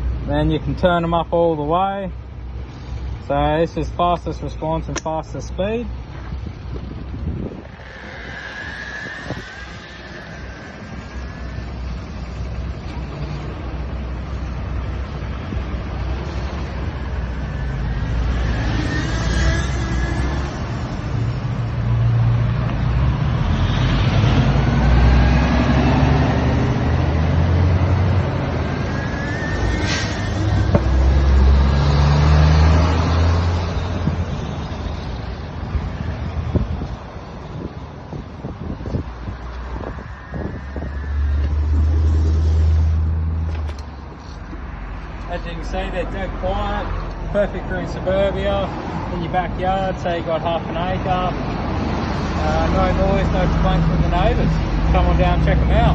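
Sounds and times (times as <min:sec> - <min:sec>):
wind rumble on microphone: 0:06.0 - 0:18.4, 0:33.6 - 0:44.2
electric motor whine: 0:07.2 - 0:13.4.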